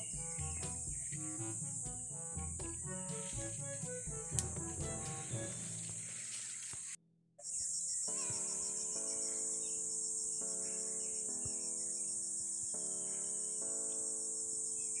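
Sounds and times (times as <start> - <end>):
soft sustained music chords: 0.0 - 7.0
insects trilling: 0.0 - 15.0.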